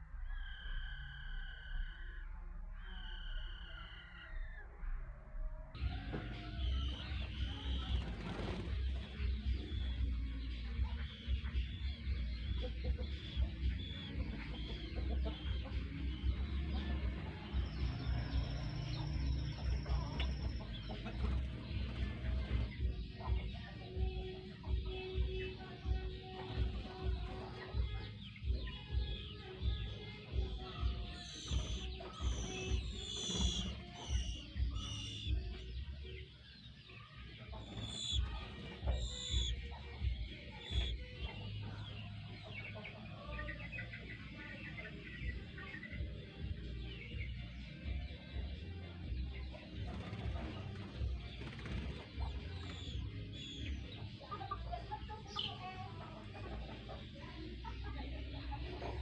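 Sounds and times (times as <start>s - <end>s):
small birds chirping: 0.1s - 4.7s, 5.8s - 59.0s
high bird trill: 28.7s - 35.7s, 37.6s - 41.8s.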